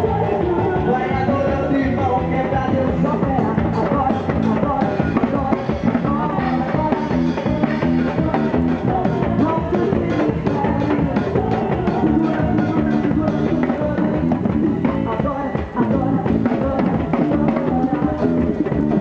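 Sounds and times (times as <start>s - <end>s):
drum kit: 0.0s - 19.0s
live band playing rock music: 0.0s - 19.0s.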